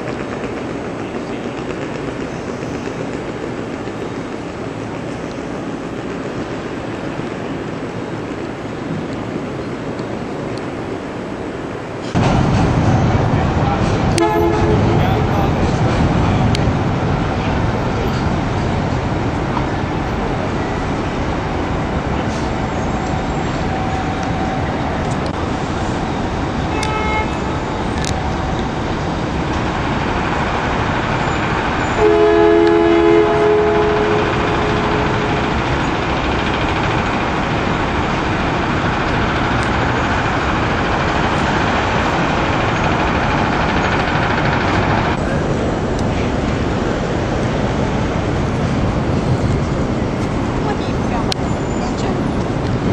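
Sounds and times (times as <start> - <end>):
train rumbling: 0.0 - 52.9
two-note train horn: 14.2 - 15.2, 26.7 - 27.6, 32.0 - 36.0.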